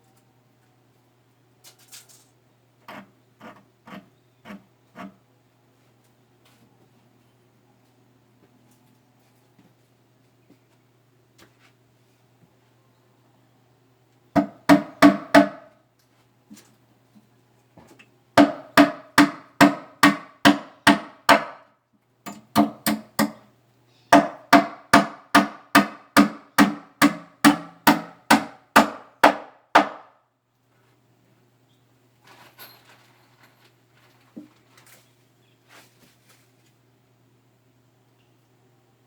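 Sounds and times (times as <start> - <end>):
hammer striking nails into wood: 14.4 - 15.7, 18.4 - 21.6, 22.3 - 23.5, 24.1 - 30.2.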